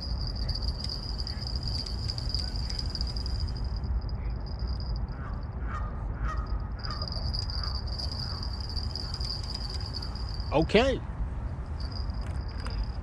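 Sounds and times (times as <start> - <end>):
steady high-pitched tone: 0.0 - 5.6, 6.5 - 10.7
low rumble: 0.0 - 10.5.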